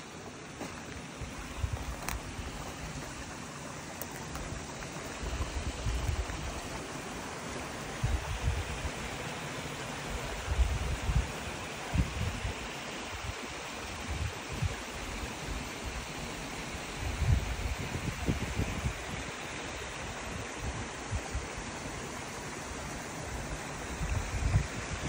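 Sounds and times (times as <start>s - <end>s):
creek water running: 0.0s - 25.0s
wind buffeting microphone: 1.2s - 3.3s, 4.2s - 6.8s, 7.8s - 9.0s, 10.2s - 14.8s, 17.0s - 19.3s, 23.4s - 25.0s.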